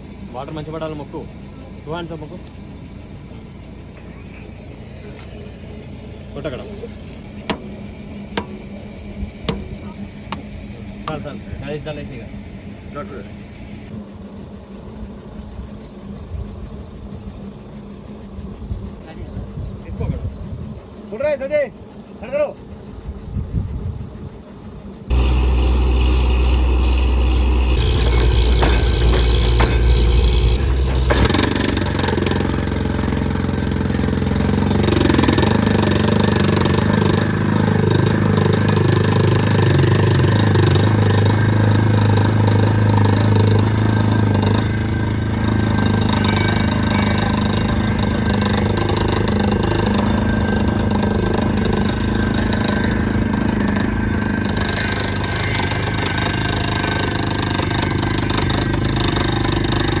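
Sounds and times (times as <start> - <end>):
drilling rig engine droning: 0.0 - 22.7, 24.8 - 60.0.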